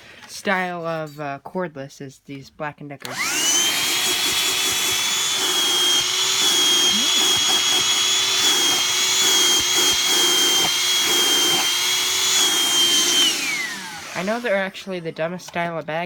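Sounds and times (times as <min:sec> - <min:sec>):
vacuum cleaner motor whine: 0:03.0 - 0:15.1.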